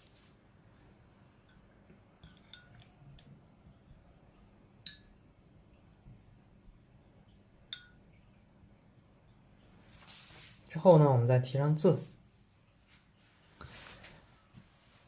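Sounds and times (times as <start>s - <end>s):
painting gear clinking on porcelain: 1.5s - 3.3s.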